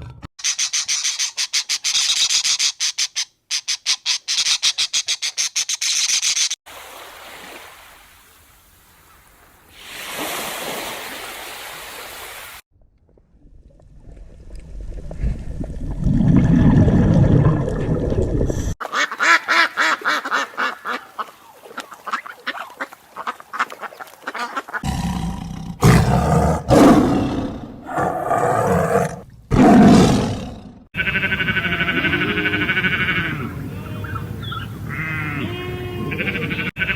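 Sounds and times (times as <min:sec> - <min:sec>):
loud animal cries: 0:31.0 - 0:34.2.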